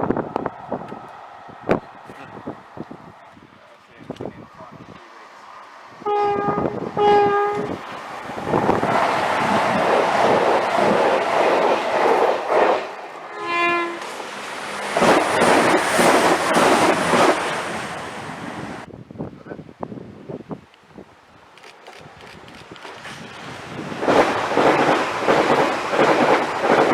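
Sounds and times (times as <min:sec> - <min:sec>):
train horn blasts: 0:06.0 - 0:07.8, 0:13.3 - 0:14.1
train wheels clattering over rail joints: 0:14.0 - 0:17.6, 0:21.6 - 0:26.9.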